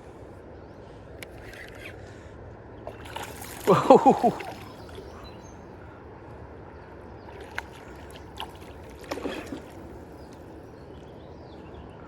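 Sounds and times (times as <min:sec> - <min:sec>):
river water rushing: 0:02.9 - 0:05.3, 0:07.4 - 0:10.1.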